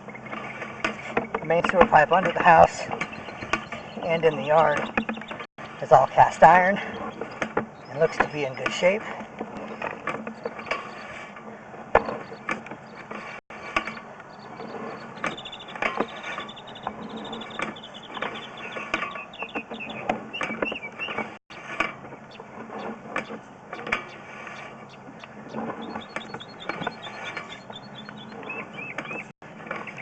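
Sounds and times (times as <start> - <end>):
clicking and rattling: 6.8 - 30.0.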